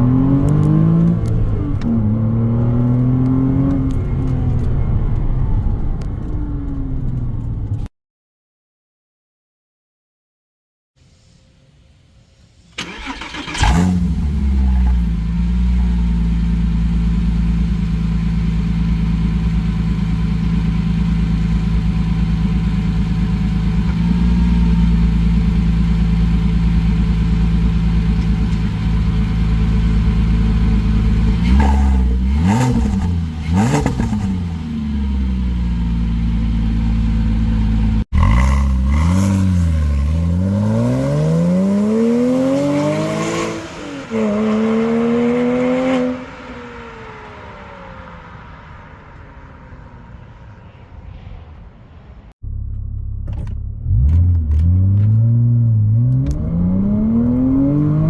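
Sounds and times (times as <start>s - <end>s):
car engine starting: 0.0s - 7.9s, 11.0s - 58.0s
car engine idling: 12.0s - 40.7s, 46.7s - 58.0s
engine throttle blips: 12.7s - 51.0s.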